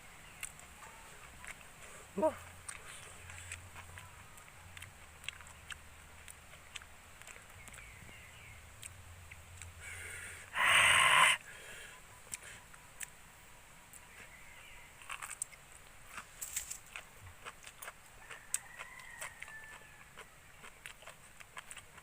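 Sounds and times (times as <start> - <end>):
harsh bird call: 10.6 - 11.4.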